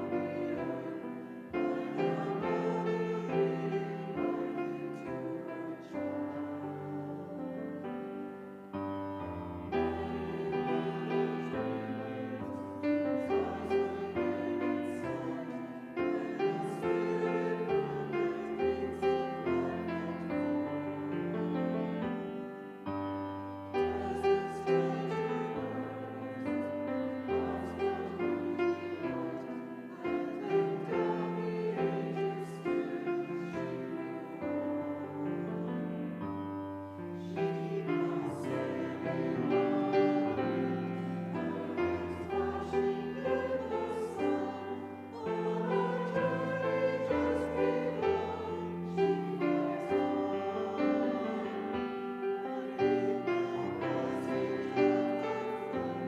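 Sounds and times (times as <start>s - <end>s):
people singing a hymn: 0.0s - 56.0s
piano chords: 0.0s - 56.0s.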